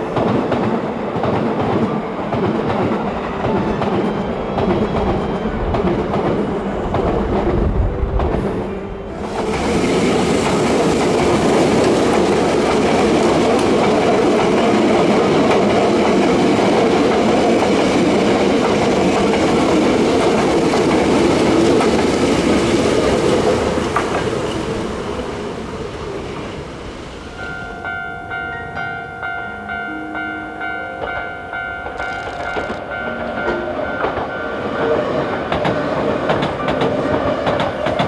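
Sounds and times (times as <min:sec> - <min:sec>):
electric train running past: 0:00.0 - 0:38.0.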